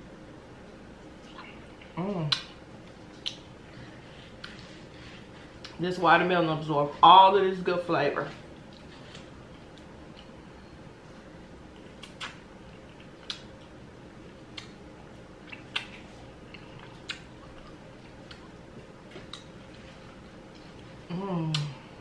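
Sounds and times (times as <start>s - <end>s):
person chewing with mouth clicks: 1.2s - 3.6s, 4.2s - 4.8s, 11.7s - 13.8s, 14.4s - 14.8s, 15.4s - 21.8s.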